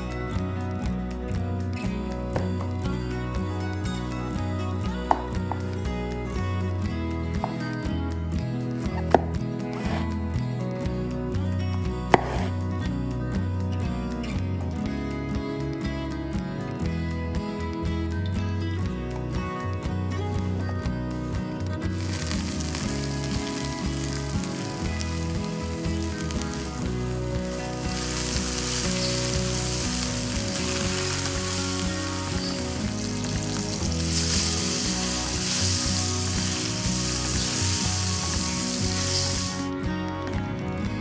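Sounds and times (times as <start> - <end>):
background music: 0.0 - 41.0
mushrooms sizzling in a pan: 21.9 - 39.7.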